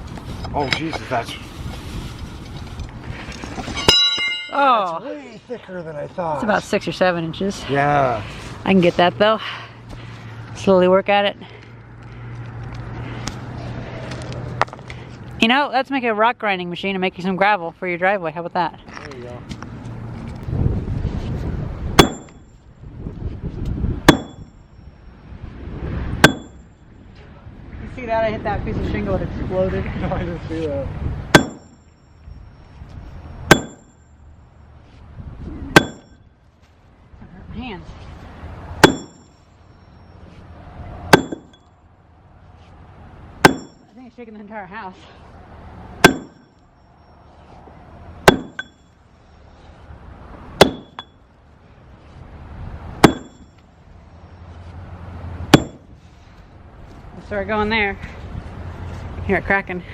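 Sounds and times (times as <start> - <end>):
maul striking concrete slab: 22.0 - 22.4, 24.1 - 24.5, 26.2 - 26.6, 31.3 - 31.8, 33.5 - 33.9, 35.7 - 36.2, 38.8 - 39.3, 41.1 - 41.6, 43.4 - 43.9, 46.0 - 46.5, 48.2 - 48.8, 50.6 - 51.1, 53.0 - 53.5, 55.5 - 55.9.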